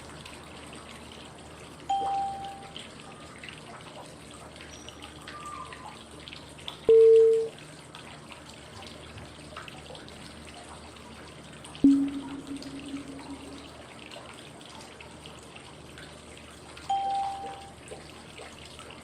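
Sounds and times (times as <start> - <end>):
trickling dripping water: 0.0 - 19.0
short cue tone: 1.9 - 2.7, 11.8 - 13.8, 16.9 - 17.7.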